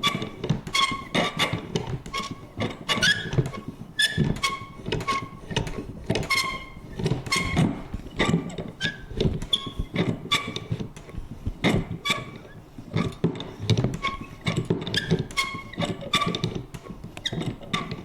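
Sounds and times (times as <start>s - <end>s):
mechanism creaking: 0.0s - 10.8s, 11.7s - 18.0s.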